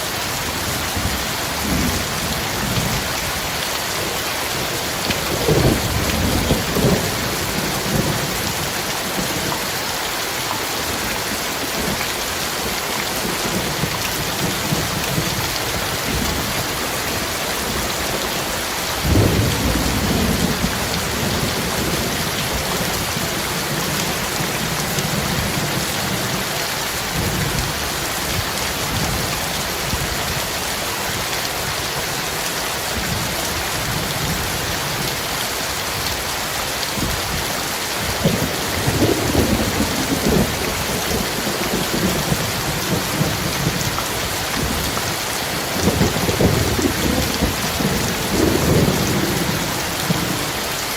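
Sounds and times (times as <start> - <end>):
heavy rain falling: 0.0 - 50.9
thunder rumbling: 4.8 - 9.5, 19.0 - 26.4, 38.1 - 50.6.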